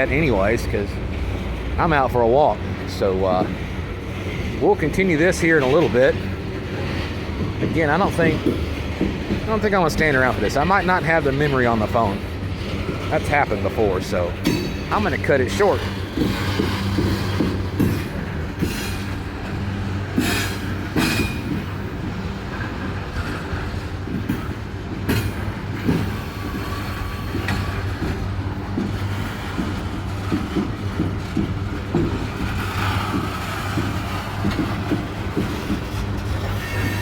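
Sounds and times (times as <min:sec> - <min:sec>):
train low rumble: 0:00.0 - 0:37.0
wheels clicking over rail joints: 0:00.0 - 0:37.0
faint wheel squeal: 0:20.1 - 0:21.8, 0:25.8 - 0:28.1, 0:35.9 - 0:37.0.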